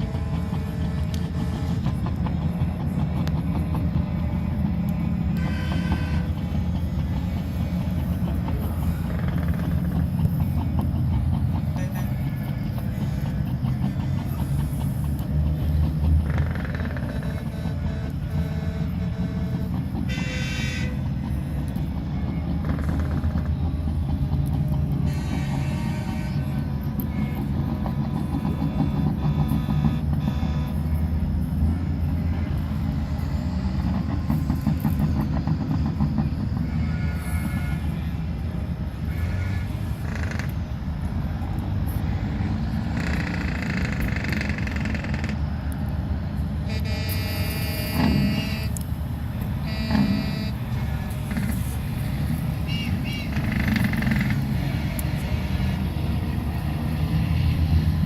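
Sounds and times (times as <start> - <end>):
heavy trucks driving past: 0.0 - 58.0
long horn blast: 4.5 - 6.8, 16.2 - 21.2, 24.9 - 35.4, 36.5 - 40.2, 46.6 - 48.9, 49.6 - 58.0
truck horn toots: 5.2 - 6.8, 16.2 - 21.2, 25.0 - 31.1, 36.5 - 38.2, 39.0 - 40.6, 46.6 - 48.8, 49.6 - 56.9.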